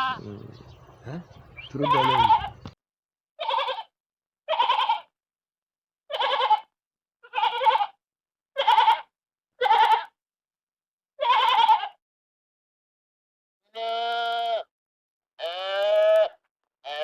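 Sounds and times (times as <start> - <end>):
sheep bleating: 0.0 - 0.8, 1.7 - 2.7, 3.4 - 3.9, 4.5 - 5.1, 6.1 - 8.0, 8.6 - 10.2, 11.2 - 12.0, 13.7 - 14.7, 15.4 - 17.0.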